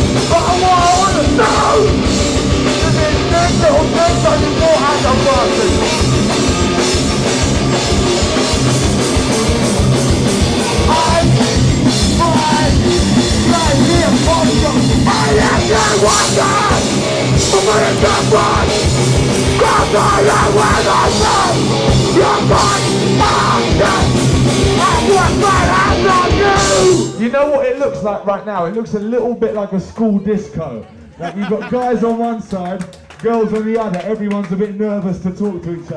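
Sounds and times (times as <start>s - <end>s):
fast drum kit: 0.0s - 27.5s
distorted guitars and bass: 0.0s - 28.2s.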